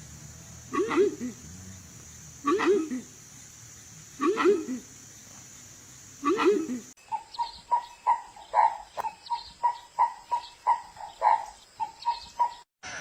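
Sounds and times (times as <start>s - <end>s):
low bird call: 6.2s - 12.7s.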